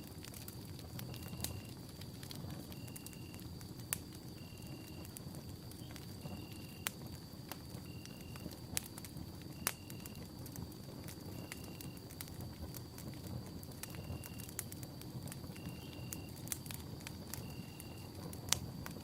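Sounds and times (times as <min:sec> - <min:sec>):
campfire flames rumbling: 0:00.0 - 0:19.0
fire crackles and pops: 0:00.0 - 0:19.0
faint steady high tone: 0:05.8 - 0:06.9.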